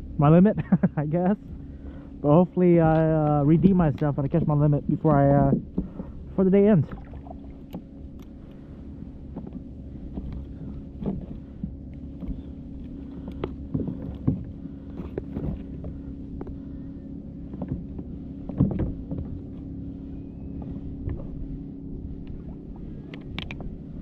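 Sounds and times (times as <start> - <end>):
boat motor humming: 0.0 - 24.0
knocks on a boat: 13.4 - 16.6, 17.5 - 19.5.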